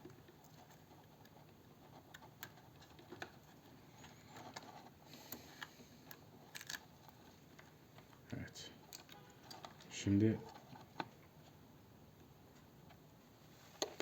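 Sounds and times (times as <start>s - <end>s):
light clicks and taps from handling: 7.4s - 11.3s.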